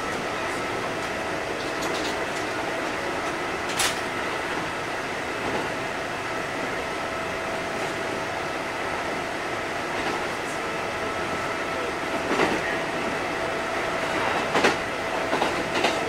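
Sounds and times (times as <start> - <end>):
train rumble inside carriage: 0.0 - 16.0.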